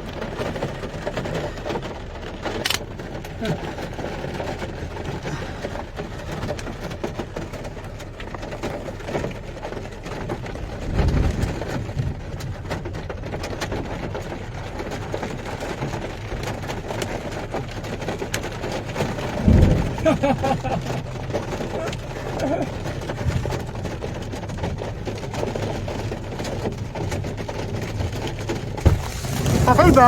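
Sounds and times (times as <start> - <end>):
rain and hail pattering: 0.0 - 30.0
wind buffeting microphone: 10.5 - 13.3, 18.9 - 22.2.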